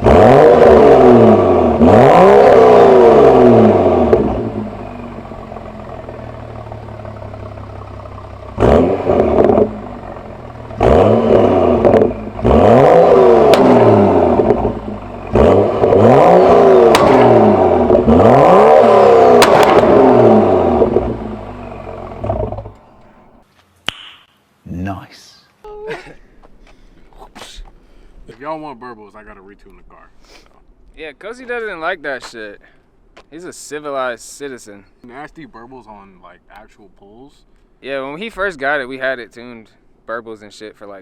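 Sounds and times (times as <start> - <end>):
car engine revving: 0.0 - 23.4.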